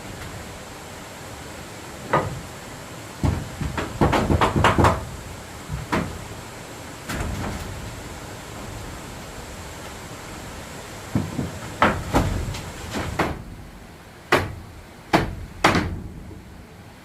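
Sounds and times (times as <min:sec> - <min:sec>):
wooden knocks and thuds: 0:02.1 - 0:02.4, 0:03.2 - 0:05.1, 0:05.7 - 0:06.2, 0:11.1 - 0:13.5, 0:14.3 - 0:16.2.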